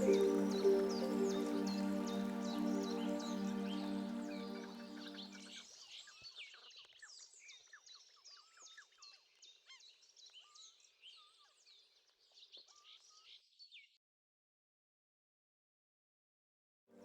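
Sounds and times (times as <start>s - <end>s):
faint chorus of birds chirping: 0.0s - 5.6s.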